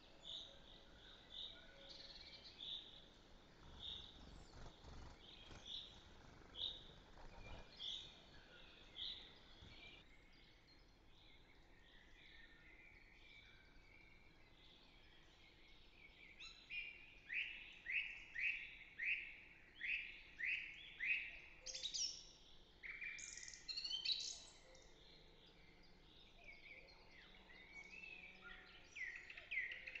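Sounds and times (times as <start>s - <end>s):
birds calling and singing: 0.0s - 19.2s, 19.8s - 30.0s.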